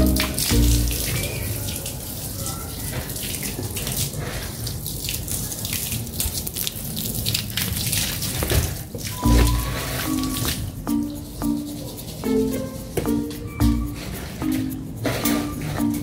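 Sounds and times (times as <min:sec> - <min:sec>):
hose water splashing on paving: 0:00.0 - 0:16.0.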